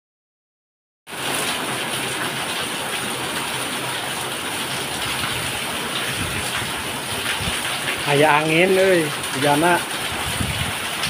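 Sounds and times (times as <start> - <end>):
heavy rain on roofs: 1.1 - 11.0.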